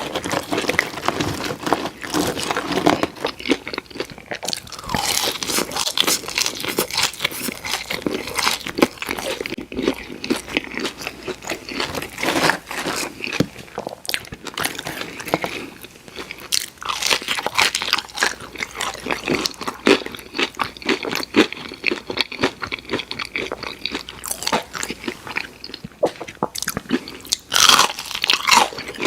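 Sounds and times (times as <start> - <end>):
crunching and chewing fried food: 0.0 - 29.0.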